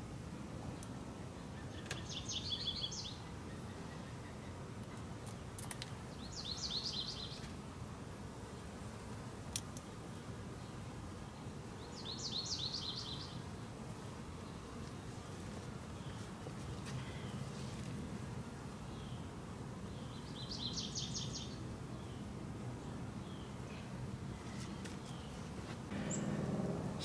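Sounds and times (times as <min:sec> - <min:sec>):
low background noise: 0:00.0 - 0:27.0
songbird singing: 0:00.7 - 0:07.5, 0:10.6 - 0:13.7, 0:18.8 - 0:27.0.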